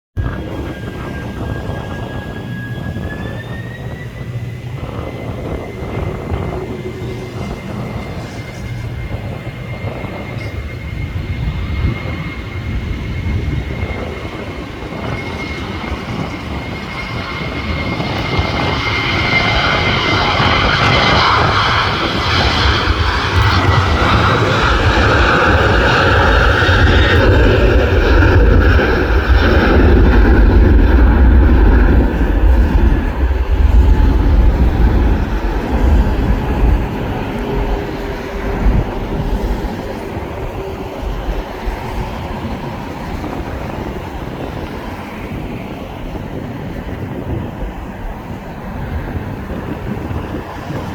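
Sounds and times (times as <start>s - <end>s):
low rumble: 0.2s - 45.8s
jet engines whining: 0.2s - 50.9s.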